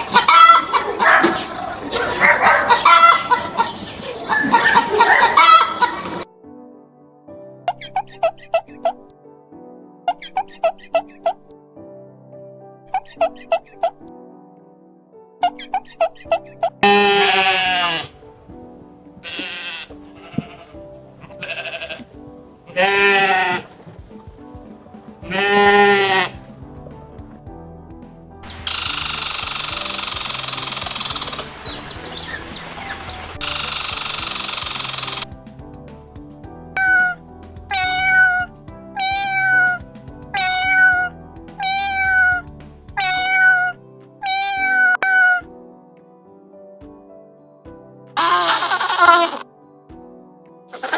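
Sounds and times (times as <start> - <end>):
background music: 0.0 - 50.9
cat meowing: 16.8 - 18.1, 19.2 - 20.8, 21.4 - 22.0, 25.3 - 26.4, 36.8 - 45.5, 48.2 - 49.4
farm animal bleating: 16.8 - 18.2, 19.2 - 23.8, 25.2 - 26.4, 36.8 - 39.8, 40.4 - 42.4, 43.0 - 45.4, 48.2 - 49.4.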